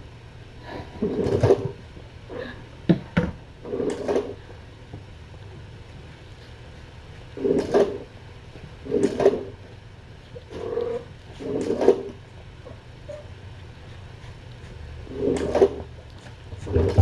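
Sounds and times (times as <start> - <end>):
kittens rustling and knocking: 15.3 - 17.0.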